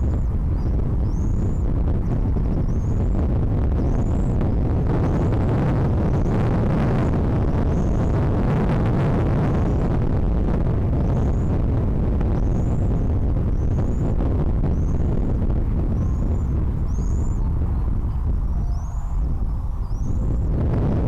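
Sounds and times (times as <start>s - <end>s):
wind buffeting microphone: 0.0s - 21.0s
faint high bird chirps: 16.0s - 17.5s, 18.5s - 19.2s, 19.8s - 20.3s.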